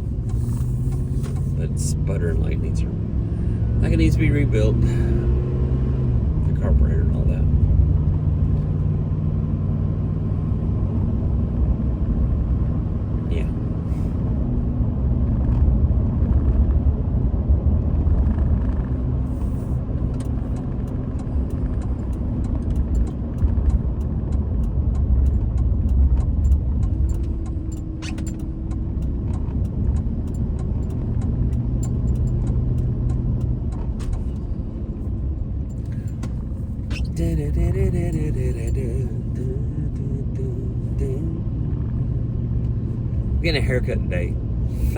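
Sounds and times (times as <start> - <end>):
truck engine sputtering: 18.3 - 41.9.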